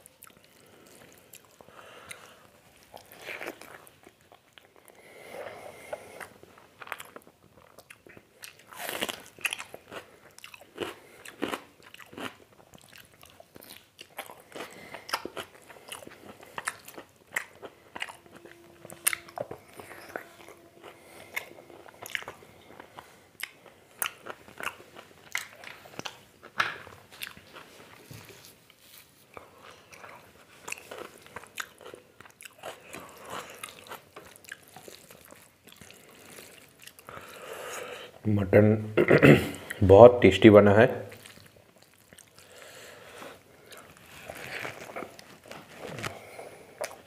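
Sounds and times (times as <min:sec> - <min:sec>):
chewing with wet mouth smacks: 0:06.8 - 0:26.2, 0:29.3 - 0:37.4, 0:41.1 - 0:42.8.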